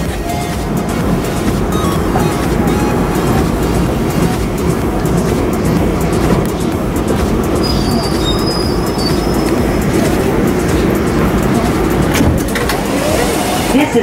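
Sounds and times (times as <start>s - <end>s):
high-pitched wheel squeal: 0.0s - 14.0s
train wheels rumbling on rail: 0.0s - 14.0s.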